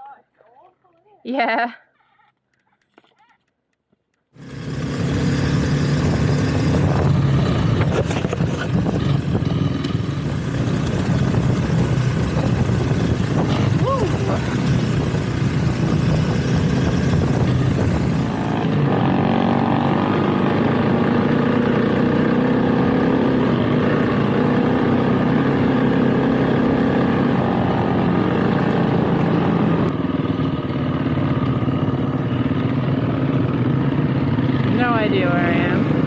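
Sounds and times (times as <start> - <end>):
motorcycle engine running: 4.4 - 36.0.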